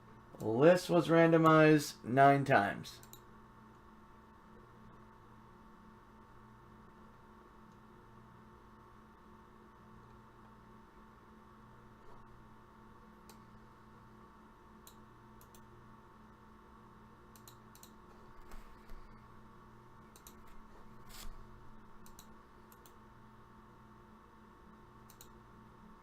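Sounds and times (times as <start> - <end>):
electrical mains hum: 0.0 - 26.0
computer mouse clicks: 3.0 - 3.3, 14.8 - 15.7, 17.3 - 19.1, 20.1 - 20.6, 22.0 - 23.0, 25.0 - 25.4.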